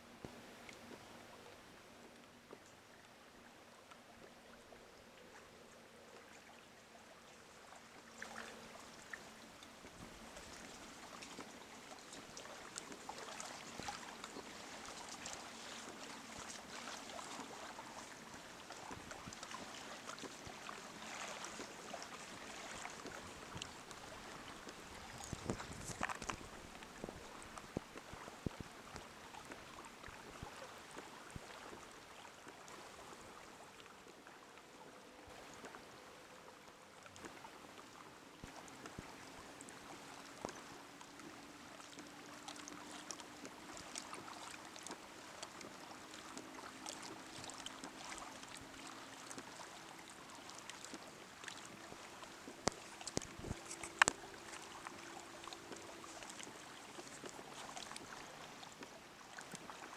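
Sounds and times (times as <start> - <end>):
water lapping against a hull: 0.0 - 59.9
small clicks: 52.7 - 54.2.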